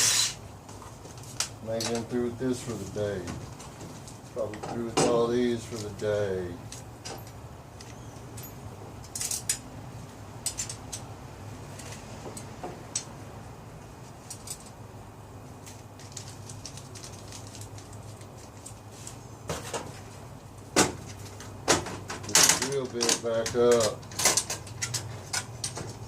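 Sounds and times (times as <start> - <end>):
hard objects clicking and clattering: 20.8 - 26.0.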